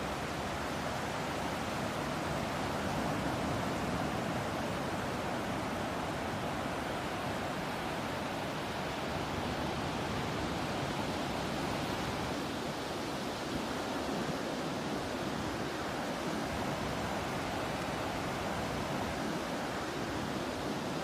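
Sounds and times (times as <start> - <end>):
ocean surf and breeze: 0.0 - 21.0.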